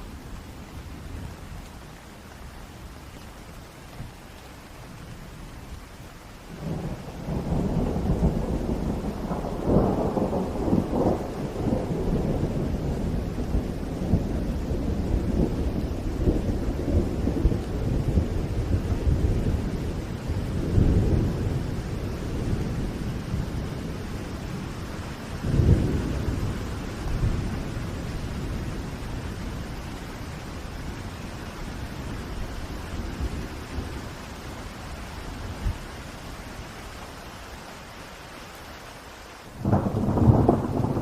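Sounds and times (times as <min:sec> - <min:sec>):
steady rain: 0:00.0 - 0:41.0
thunder rumbling: 0:06.6 - 0:34.6, 0:39.6 - 0:41.0.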